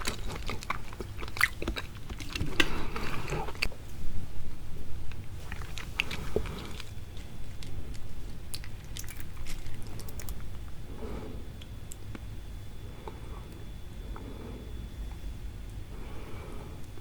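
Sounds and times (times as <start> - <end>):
chewing seafood: 0.0 - 3.7, 5.2 - 10.6.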